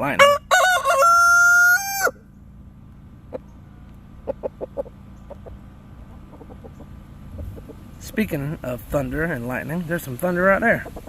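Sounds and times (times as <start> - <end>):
rooster crowing: 0.1 - 2.3
chickens clucking softly: 3.2 - 8.5, 10.7 - 11.0.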